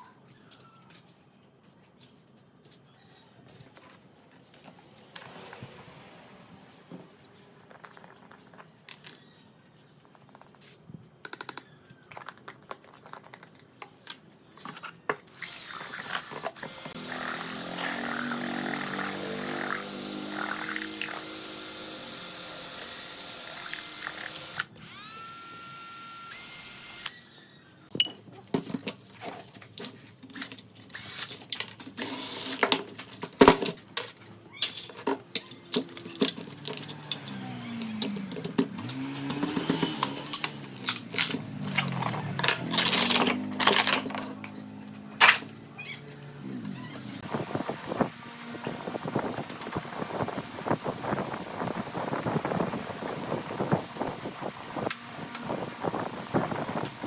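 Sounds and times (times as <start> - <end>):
tools clicking and knocking: 11.2 - 15.3, 29.8 - 45.6
handheld power drill running: 15.3 - 27.3, 31.0 - 31.3, 32.0 - 32.6, 36.5 - 41.1, 48.0 - 57.0.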